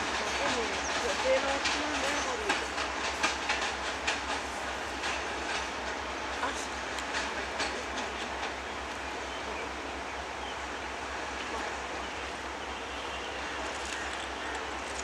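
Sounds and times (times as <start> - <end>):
train wheels clicking over rail joints: 0.0 - 9.0
train rumble: 0.0 - 15.0.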